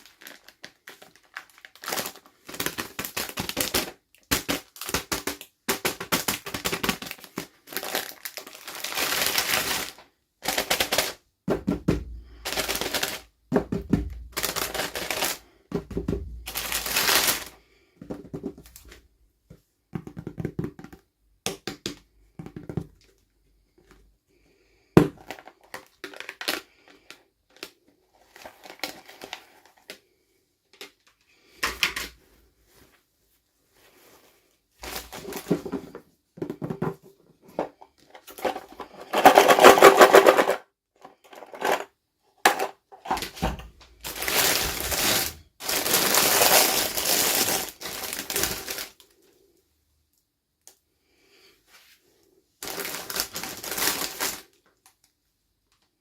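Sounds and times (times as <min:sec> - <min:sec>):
plastic packaging crackling: 0:00.0 - 0:11.2, 0:12.4 - 0:13.3, 0:14.0 - 0:15.4, 0:16.3 - 0:17.6, 0:25.2 - 0:30.0, 0:34.8 - 0:35.7, 0:42.5 - 0:49.0, 0:52.6 - 0:55.0.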